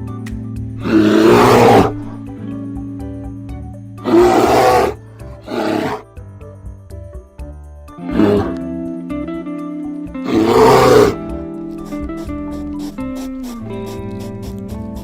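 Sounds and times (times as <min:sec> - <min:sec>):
plucked-string background music: 0:00.0 - 0:15.0
large animal roaring: 0:00.8 - 0:02.2, 0:04.0 - 0:06.0, 0:08.1 - 0:08.6, 0:10.2 - 0:11.4.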